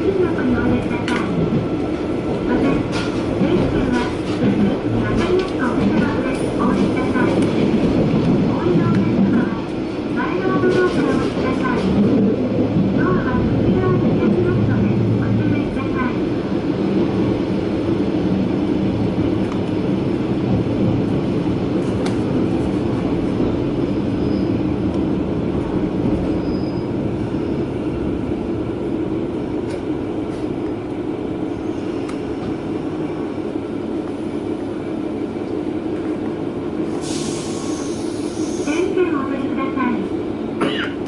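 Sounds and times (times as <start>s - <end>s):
railcar rumbling on rails: 0.0s - 41.0s.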